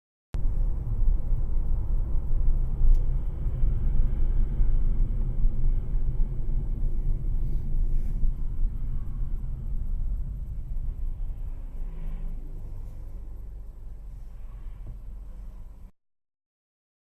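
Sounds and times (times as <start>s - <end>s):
car engine rumble: 0.4s - 15.9s
road noise: 0.4s - 15.9s.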